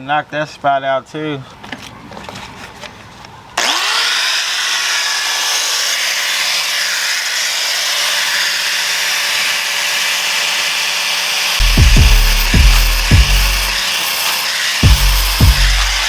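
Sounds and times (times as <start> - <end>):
angle grinder grinding metal: 3.6 - 16.0.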